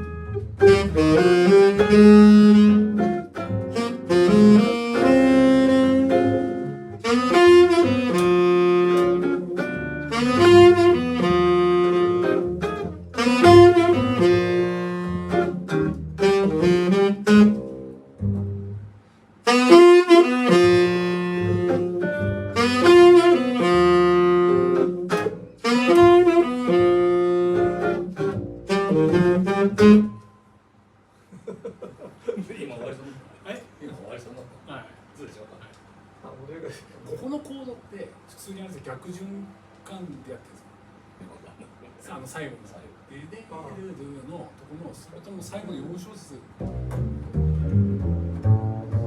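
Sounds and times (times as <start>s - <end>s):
jazz band with saxophone lead: 0.0s - 18.8s, 19.4s - 30.2s, 46.6s - 49.0s.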